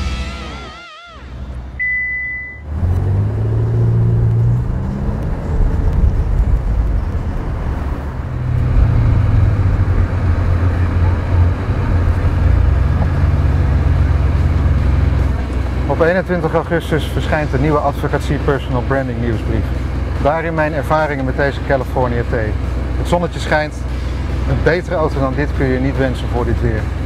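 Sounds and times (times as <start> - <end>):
car engine revving: 0.0 - 27.0
short high beep: 0.6 - 2.6.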